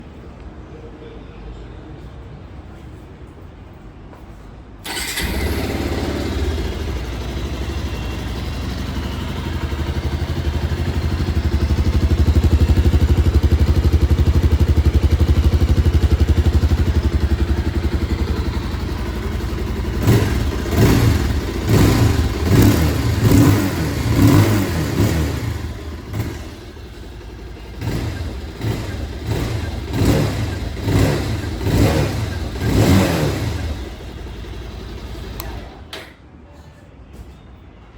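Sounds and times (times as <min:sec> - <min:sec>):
motorcycle engine revving: 0:04.8 - 0:35.6.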